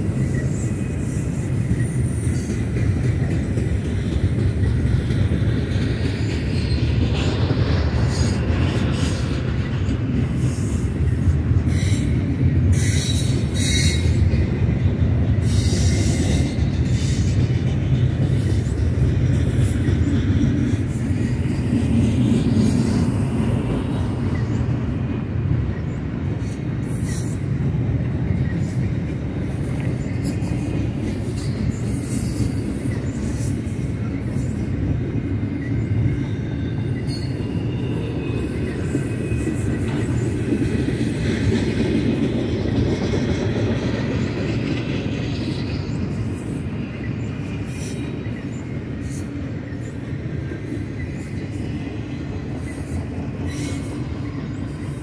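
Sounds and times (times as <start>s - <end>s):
freight train wheels rumbling: 0.0s - 55.0s
faint wheel squeal: 35.6s - 40.0s, 52.6s - 55.0s.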